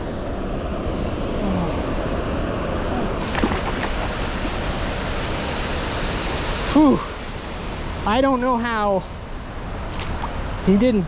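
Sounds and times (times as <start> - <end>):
water pouring over waterfall: 3.1 - 7.8.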